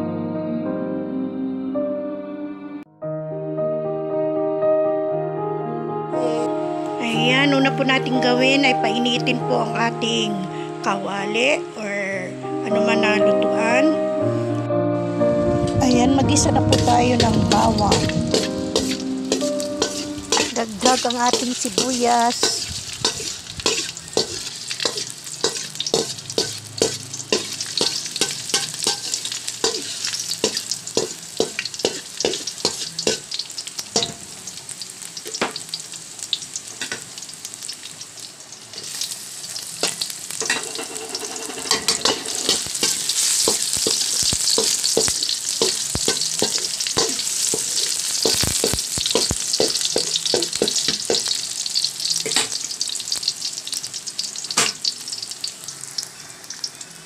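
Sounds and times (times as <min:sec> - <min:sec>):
garlic and onions sizzling in oil: 0:06.2 - 0:14.0, 0:15.8 - 0:57.0
utensil scraping and tapping pan: 0:16.8 - 0:33.3, 0:39.8 - 0:51.3.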